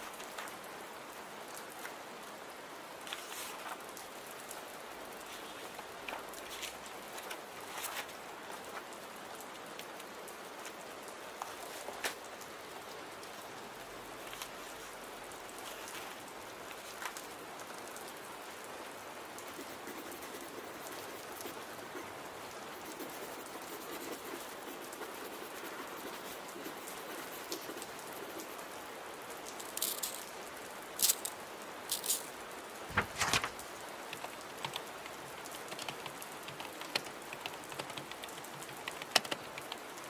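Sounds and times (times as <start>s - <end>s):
steady rain: 0.0s - 40.0s.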